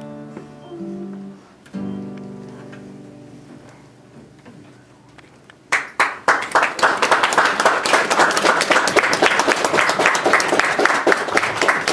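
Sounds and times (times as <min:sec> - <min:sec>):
audience applauding: 0:05.7 - 0:11.9.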